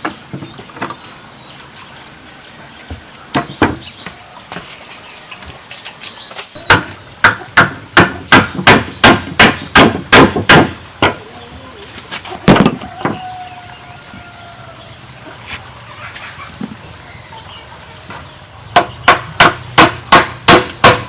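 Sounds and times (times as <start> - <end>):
hammer striking bamboo: 6.6 - 11.2, 18.7 - 21.0.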